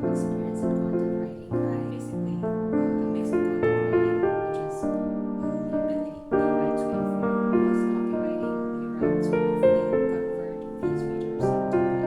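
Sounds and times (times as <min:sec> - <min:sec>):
calm solo piano music: 0:00.0 - 0:12.0.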